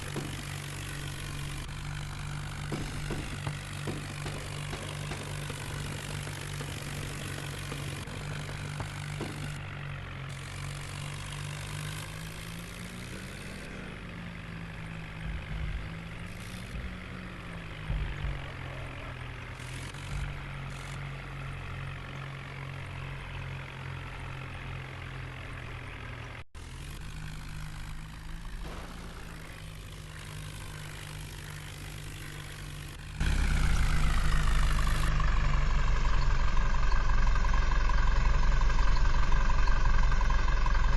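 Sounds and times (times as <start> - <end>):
tractor diesel engine idling: 0.0 - 40.9.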